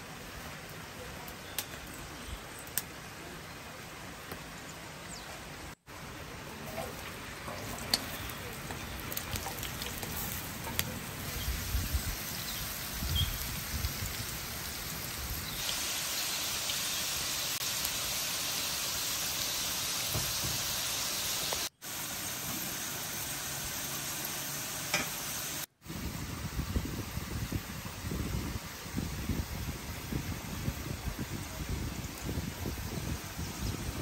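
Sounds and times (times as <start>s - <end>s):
potatoes sizzling in hot oil: 6.6s - 34.0s.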